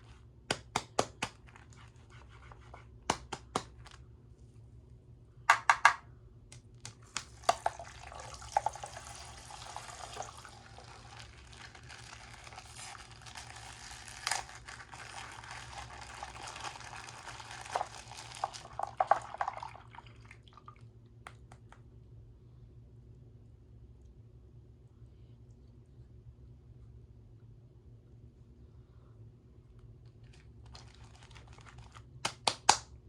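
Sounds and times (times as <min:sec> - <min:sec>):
water pouring and splashing: 0:07.5 - 0:12.9, 0:15.0 - 0:20.8
plastic crinkling: 0:10.6 - 0:19.0, 0:30.2 - 0:32.2.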